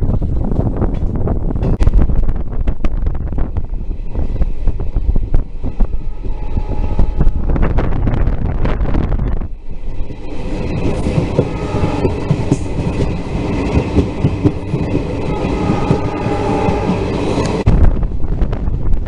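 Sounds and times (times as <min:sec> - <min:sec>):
train coach rattling: 0:00.0 - 0:19.0
wind on microphone: 0:00.0 - 0:19.0
train wheels clacking on track: 0:10.0 - 0:17.7.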